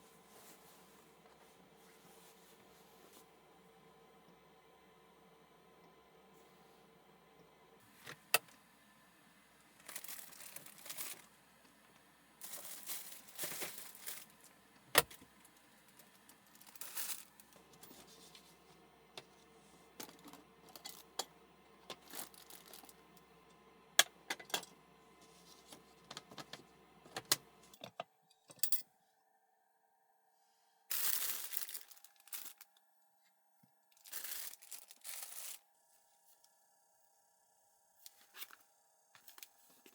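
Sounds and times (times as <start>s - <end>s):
faint steady hum: 0.0s - 39.9s
rustling of packaging: 9.7s - 11.4s, 12.4s - 18.9s, 19.9s - 23.2s, 30.9s - 32.8s, 33.9s - 35.6s, 39.2s - 39.9s.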